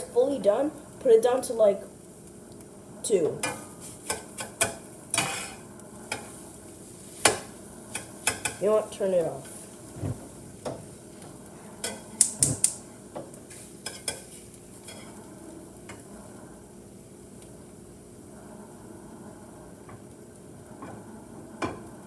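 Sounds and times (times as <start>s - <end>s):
eggs sizzling in a pan: 0.0s - 22.0s
metal utensil scraping a pan: 3.4s - 6.4s, 7.1s - 9.6s, 11.8s - 12.1s, 13.5s - 15.2s.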